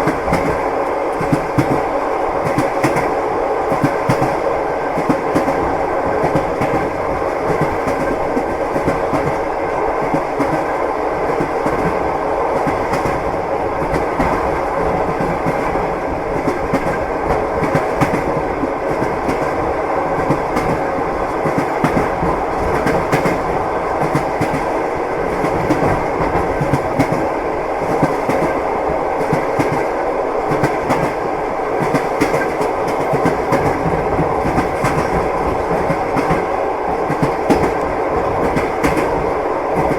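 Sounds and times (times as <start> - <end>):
train wheels clattering: 30.5 - 39.9.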